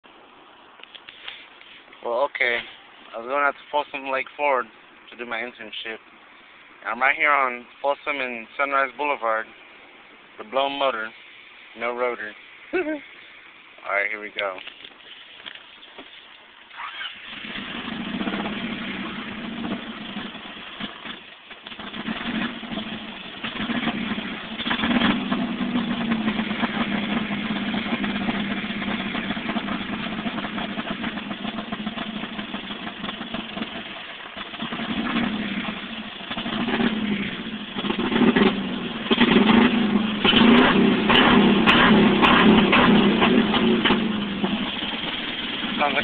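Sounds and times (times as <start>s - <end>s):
car engine running rough: 16.7s - 46.0s.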